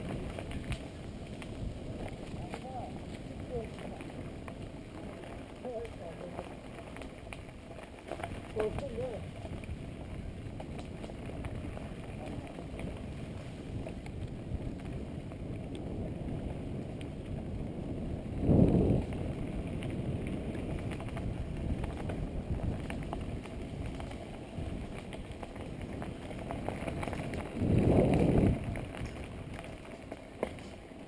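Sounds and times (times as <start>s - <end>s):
bicycle tyres rumbling: 0.0s - 31.0s
wind noise: 0.0s - 31.0s.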